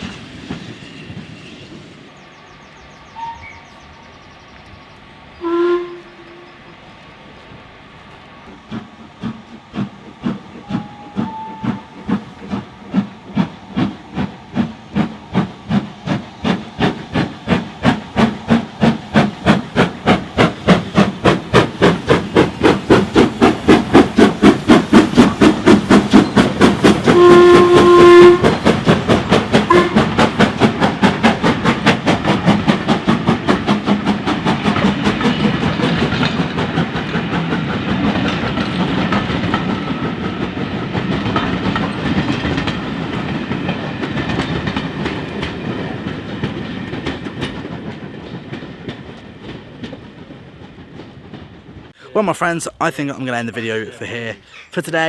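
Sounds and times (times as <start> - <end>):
steam locomotive exhaust beats: 0.0 - 53.2
steam whistle blast: 3.1 - 3.7, 5.4 - 6.6, 10.6 - 12.1, 27.0 - 28.6, 29.7 - 30.2.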